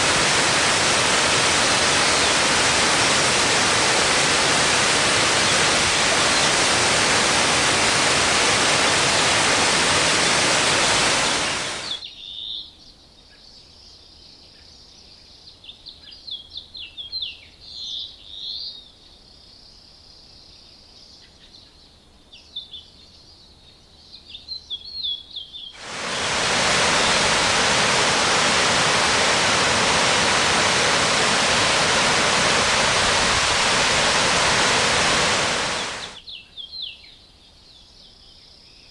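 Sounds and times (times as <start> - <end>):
birds chirping: 0.0 - 12.0, 25.8 - 36.2
waterfall rushing: 0.0 - 12.0, 25.8 - 36.2.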